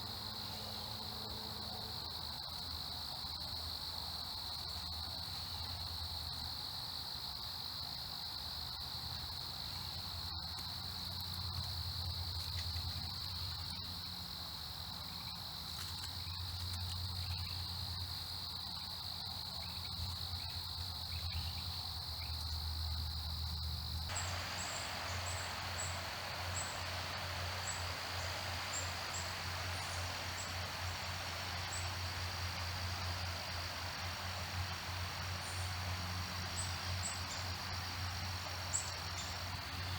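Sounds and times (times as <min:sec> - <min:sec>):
high-pitched insect chorus: 0:00.0 - 0:39.9
hiss: 0:24.0 - 0:39.9
low hum: 0:24.1 - 0:39.0.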